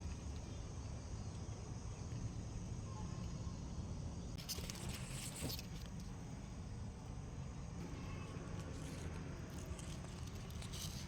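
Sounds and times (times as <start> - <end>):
crackling rustle: 4.4 - 6.5, 7.8 - 11.0.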